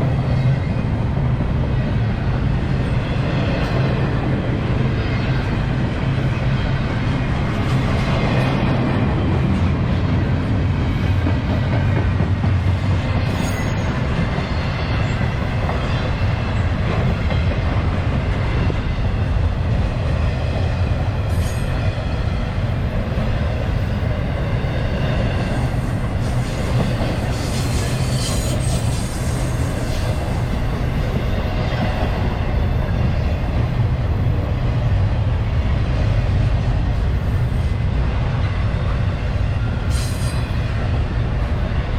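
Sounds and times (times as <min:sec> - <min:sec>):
train cars rolling on rails: 0:00.0 - 0:41.9
high wheel squeal: 0:26.2 - 0:30.2.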